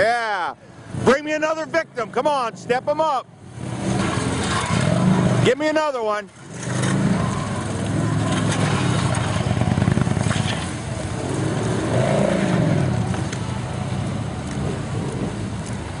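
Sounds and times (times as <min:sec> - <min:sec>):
motorcycle engines revving: 0:00.0 - 0:16.0.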